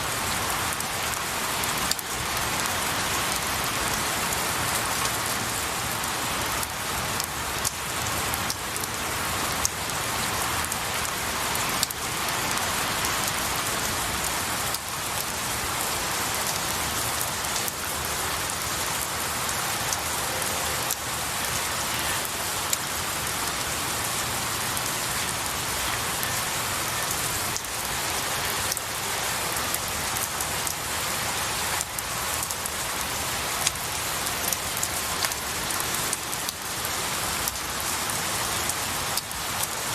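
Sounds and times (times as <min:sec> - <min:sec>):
rain on pine needles: 0:00.0 - 0:39.9
rain drop ticks: 0:00.7 - 0:02.7, 0:06.5 - 0:09.8, 0:10.6 - 0:13.9, 0:16.4 - 0:17.8, 0:29.7 - 0:30.8, 0:31.8 - 0:39.8.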